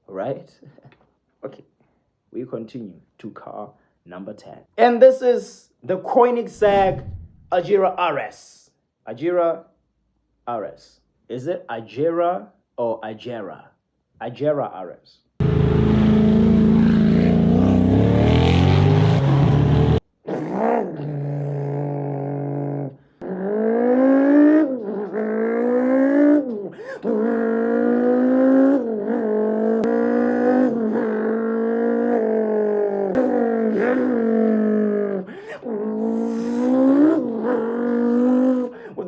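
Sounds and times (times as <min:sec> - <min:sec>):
man imitating engine with mouth: 0:06.5 - 0:07.6, 0:19.6 - 0:39.0
sports car engine: 0:06.5 - 0:07.6, 0:15.4 - 0:20.0, 0:21.5 - 0:35.0.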